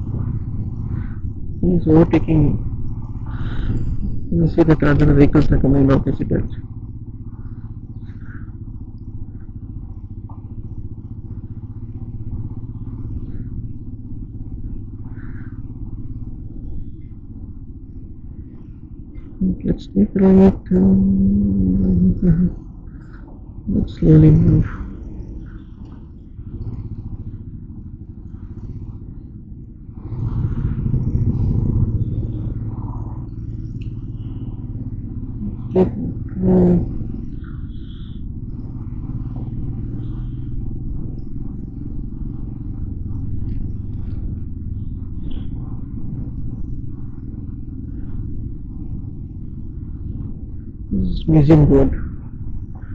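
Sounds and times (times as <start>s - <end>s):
motorcycle engine droning: 0.0s - 52.9s.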